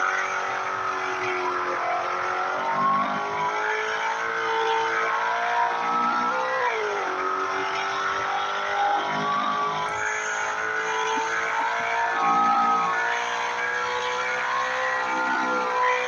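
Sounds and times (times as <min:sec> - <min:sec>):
car engine running at high revs: 0:00.0 - 0:16.0.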